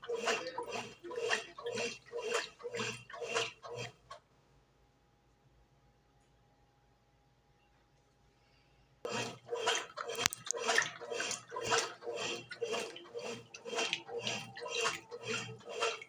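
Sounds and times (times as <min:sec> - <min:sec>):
washing machine churning water: 0:00.0 - 0:04.2, 0:09.1 - 0:16.0.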